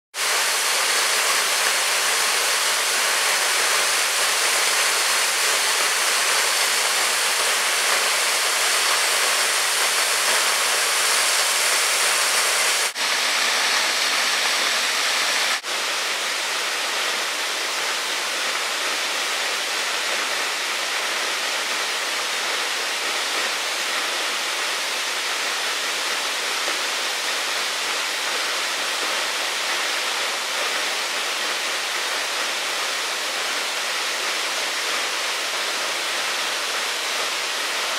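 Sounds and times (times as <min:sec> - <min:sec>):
running water rushing: 0:00.2 - 0:37.9.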